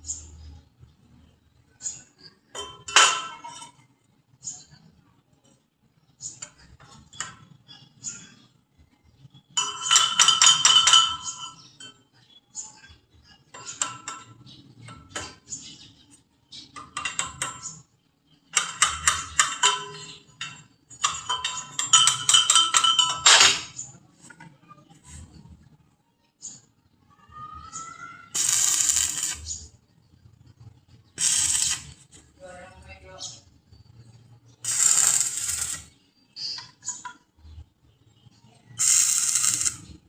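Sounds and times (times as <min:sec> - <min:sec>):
metal clinking on metal: 0:01.9 - 0:03.8, 0:09.6 - 0:12.1, 0:18.5 - 0:24.0.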